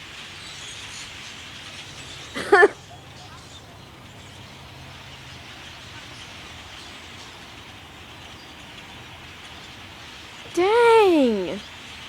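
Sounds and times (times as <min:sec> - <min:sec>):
flock of birds chirping: 0:00.0 - 0:12.0.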